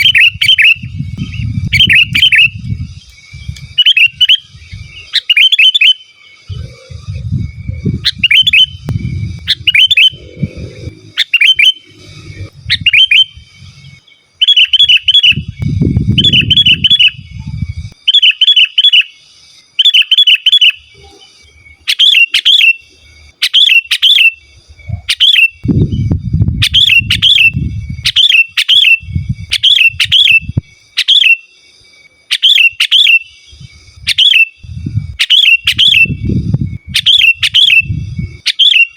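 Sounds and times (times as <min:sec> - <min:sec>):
low rumbling: 0:00.0 - 0:03.8, 0:06.5 - 0:14.1, 0:15.0 - 0:18.0, 0:24.6 - 0:28.0, 0:29.0 - 0:30.7, 0:33.6 - 0:35.2, 0:36.0 - 0:37.0
bulbul singing bubbling phrases: 0:06.5 - 0:14.0.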